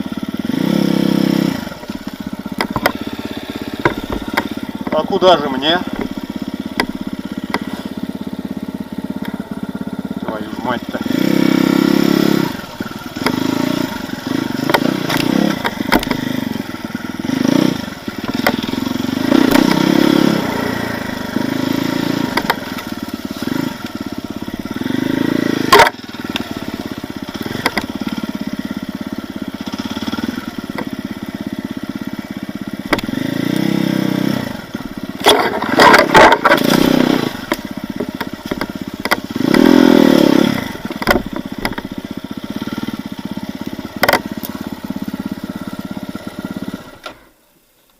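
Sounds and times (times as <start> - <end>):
motorcycle engine revving: 0.0 - 47.4
sharp knocks and clatter: 2.0 - 3.0, 3.8 - 5.1, 14.6 - 16.2, 18.2 - 18.7, 27.5 - 28.2, 35.2 - 39.7, 40.8 - 41.9, 44.0 - 44.3.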